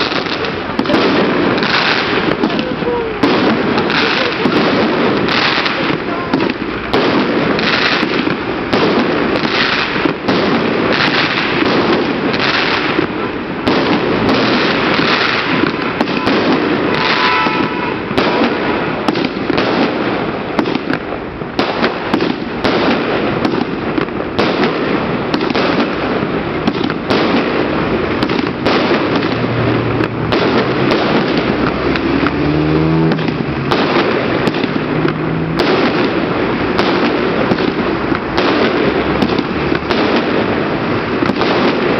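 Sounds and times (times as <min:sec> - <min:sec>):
fireworks bangs and crackling: 0:00.0 - 0:41.9.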